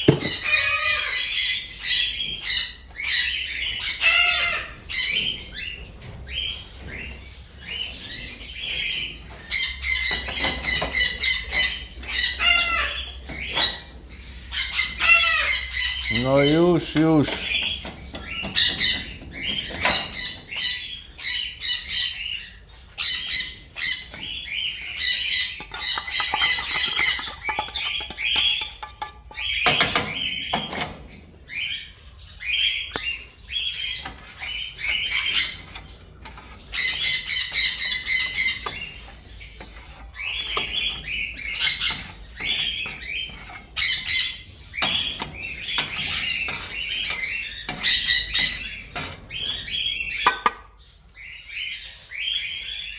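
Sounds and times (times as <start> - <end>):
parrots squawking: 0.0 - 5.7, 9.5 - 17.7.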